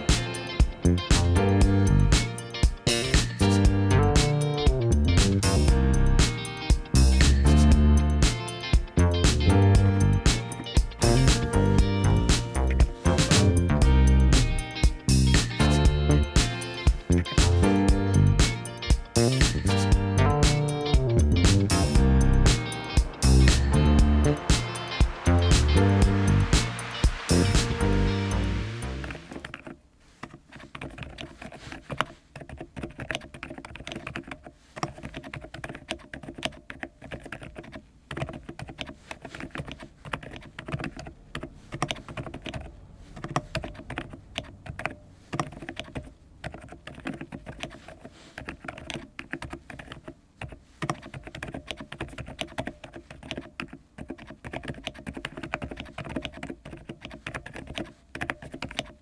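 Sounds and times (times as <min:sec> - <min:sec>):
mechanical keyboard typing: 0:31.9 - 0:59.0.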